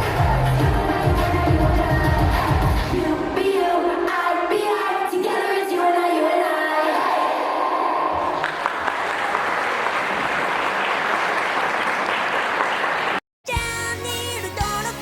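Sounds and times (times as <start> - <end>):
music with singing: 0.0 - 8.1, 13.5 - 15.0
audience applauding: 8.2 - 13.2.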